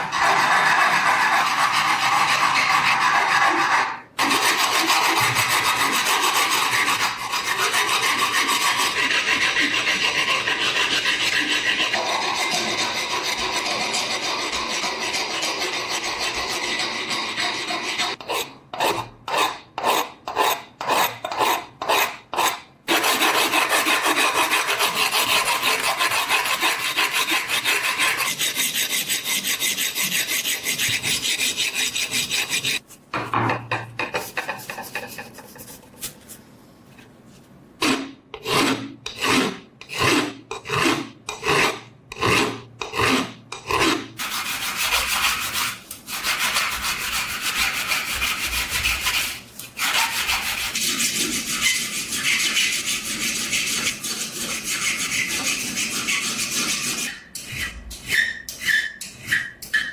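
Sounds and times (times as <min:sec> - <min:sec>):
sanding or filing metal: 0:00.0 - 0:19.0, 0:19.8 - 0:32.8, 0:44.2 - 0:59.5
continuous scraping on metal: 0:00.0 - 0:32.9, 0:34.0 - 0:36.4, 0:38.4 - 0:59.9.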